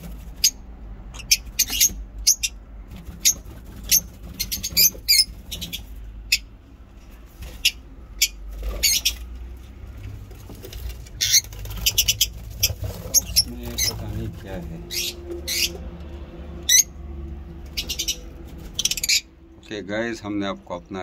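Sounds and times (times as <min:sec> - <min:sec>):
low steady rumble: 0:00.0 - 0:21.0
lovebirds chirping: 0:00.3 - 0:06.6, 0:07.4 - 0:09.5, 0:10.7 - 0:16.0, 0:17.6 - 0:19.4.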